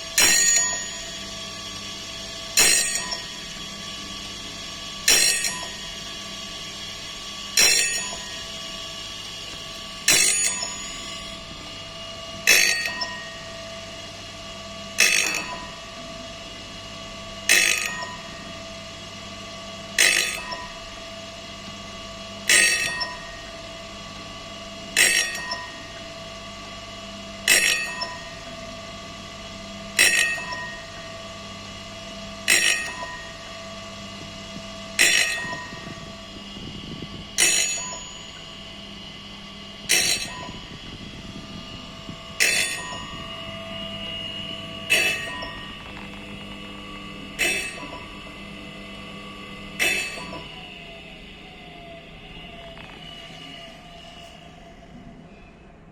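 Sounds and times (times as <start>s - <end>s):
motor hum: 0.0s - 55.6s
ringing metallic clank: 0.2s - 1.2s, 2.5s - 3.5s, 5.0s - 6.1s, 7.6s - 8.6s, 9.7s - 11.6s, 12.5s - 13.5s, 17.5s - 18.4s, 22.5s - 23.5s, 32.5s - 33.5s, 35.0s - 36.1s, 37.4s - 38.7s, 39.9s - 41.0s, 42.4s - 46.1s, 47.4s - 48.2s, 49.8s - 50.6s.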